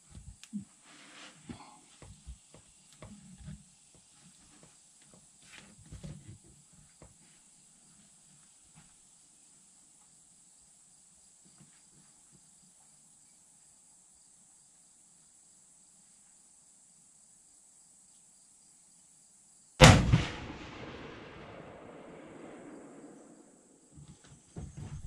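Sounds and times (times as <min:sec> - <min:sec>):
rifle shot with echo: 0:19.8 - 0:23.8.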